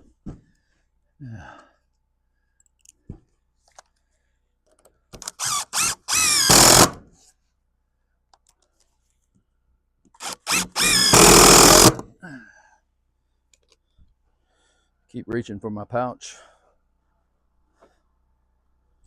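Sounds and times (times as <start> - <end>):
power drill motor whine: 5.2 - 7.0, 10.2 - 12.0.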